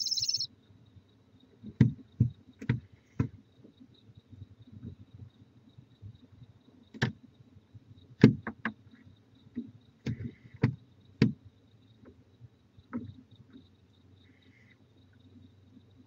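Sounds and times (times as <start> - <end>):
crickets chirping: 0.0 - 1.5, 10.8 - 16.0.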